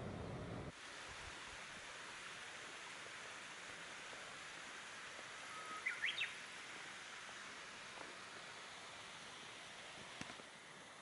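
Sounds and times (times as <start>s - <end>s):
outdoor background hiss: 0.0s - 11.0s
bird call: 5.5s - 6.4s.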